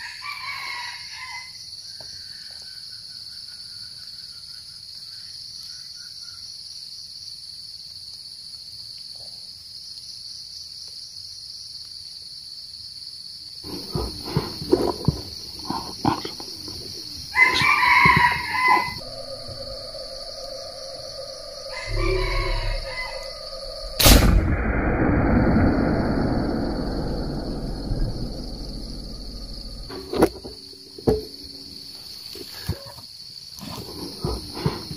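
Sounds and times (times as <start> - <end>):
rooster crowing: 0.0 - 1.6, 17.3 - 24.1
insects shrilling: 13.6 - 34.9
steady hum: 19.0 - 32.2.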